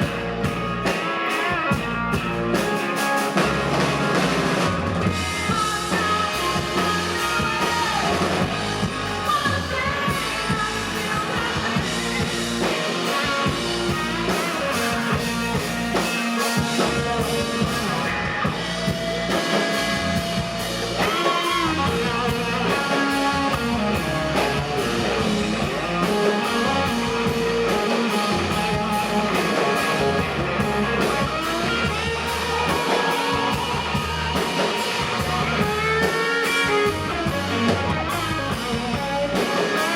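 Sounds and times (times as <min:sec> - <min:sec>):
bass guitar: 0:00.0 - 0:39.9
drum kit: 0:00.0 - 0:39.9
electric guitar: 0:00.0 - 0:39.9
person singing: 0:05.1 - 0:18.3.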